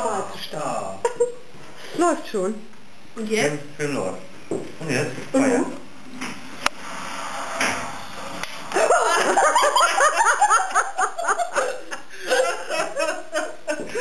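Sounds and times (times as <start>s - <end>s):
hearty laughter: 8.8s - 14.0s.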